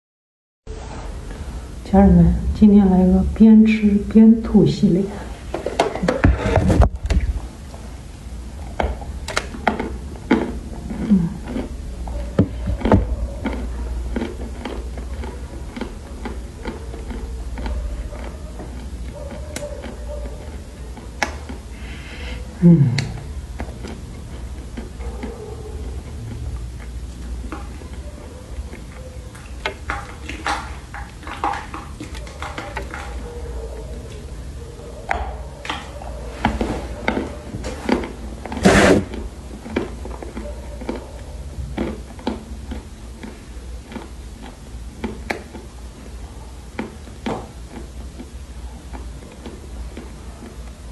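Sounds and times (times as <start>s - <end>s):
crunching and chewing clay: 5.7s - 50.9s
mouth sounds: 10.5s - 14.2s, 21.2s - 23.4s
low voice-like sound: 22.6s - 23.2s.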